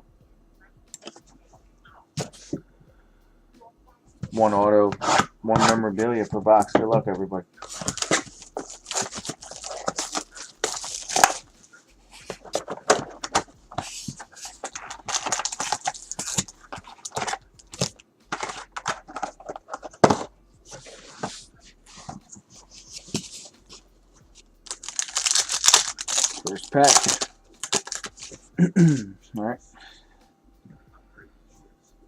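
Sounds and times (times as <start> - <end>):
cardboard rustling: 4.2 - 11.4, 12.1 - 23.8, 24.7 - 28.5
plastic wrapping tearing: 7.6 - 11.4, 12.3 - 22.2, 24.6 - 29.0
sharp clicks and crackles: 24.7 - 28.4.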